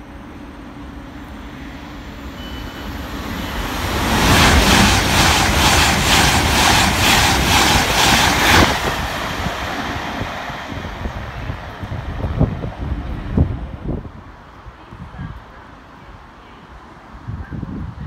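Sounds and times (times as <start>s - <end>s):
train wheels roaring on rails: 0.0s - 18.0s.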